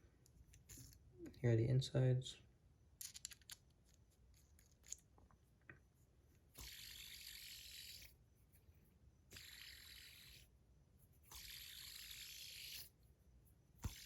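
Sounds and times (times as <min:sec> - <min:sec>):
fidget spinner high-pitched hissing: 0:06.6 - 0:08.2, 0:09.3 - 0:10.5, 0:11.2 - 0:13.0, 0:13.8 - 0:14.0.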